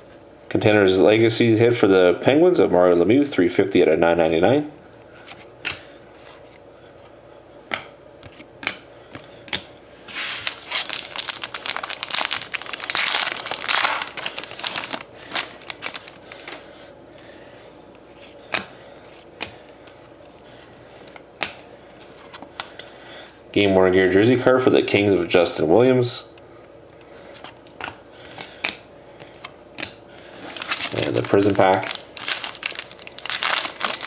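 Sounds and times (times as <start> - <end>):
wrapper tearing and crinkling: 10.4 - 16.2, 30.5 - 34.0.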